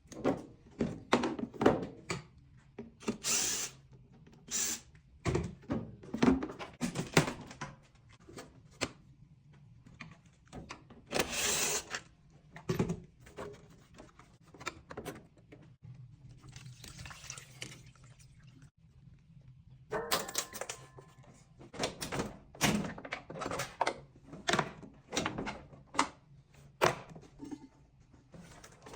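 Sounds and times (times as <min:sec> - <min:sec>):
tools knocking and scraping metal parts: 0:19.9 - 0:26.1.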